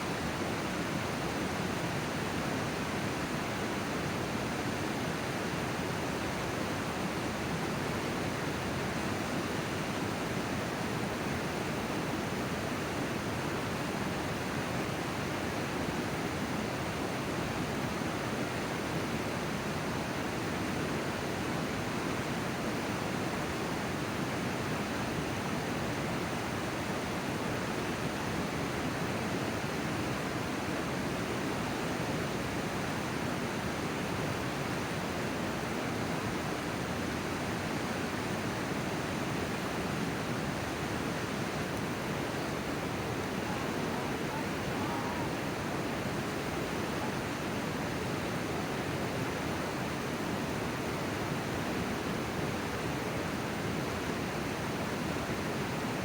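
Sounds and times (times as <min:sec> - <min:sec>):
river water rushing: 0:16.9 - 0:56.0.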